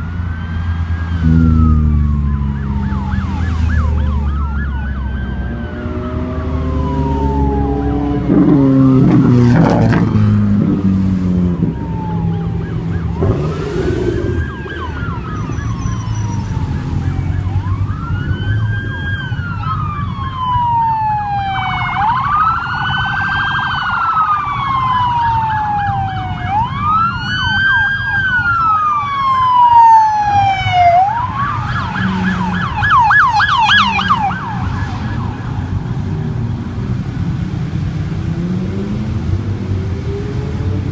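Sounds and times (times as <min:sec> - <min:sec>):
car engines running: 0:00.0 - 0:20.8
emergency vehicle siren: 0:00.0 - 0:40.9.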